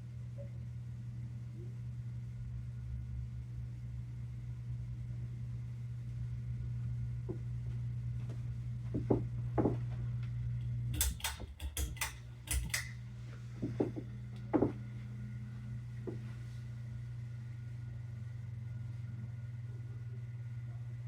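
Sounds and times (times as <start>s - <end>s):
ceiling fan motor humming: 0.0s - 21.0s
sharp clicks and rattles: 11.0s - 13.0s.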